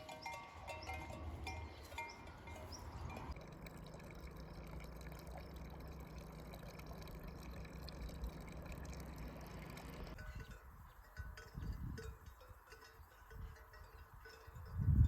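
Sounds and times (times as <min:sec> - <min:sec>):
running water: 0:00.0 - 0:10.2.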